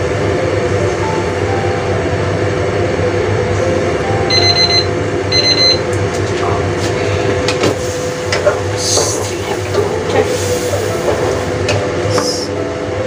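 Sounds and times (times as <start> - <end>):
short electronic beeps: 4.3 - 5.8.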